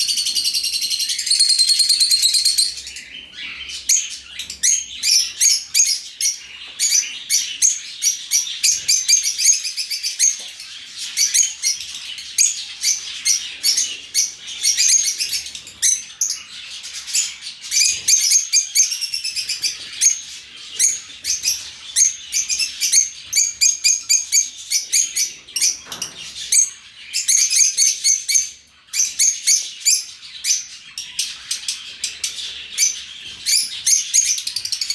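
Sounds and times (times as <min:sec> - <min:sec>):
lovebirds chirping and chattering: 0:00.0 - 0:34.9.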